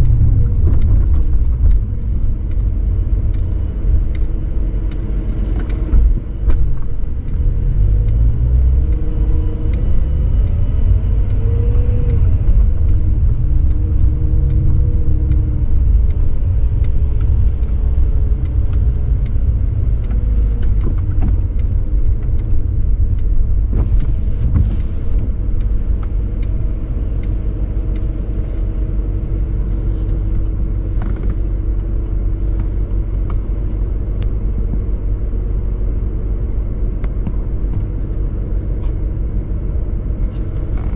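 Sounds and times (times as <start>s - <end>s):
car engine and exhaust rumbling: 0.0s - 40.9s
faint ticks: 27.2s - 28.7s.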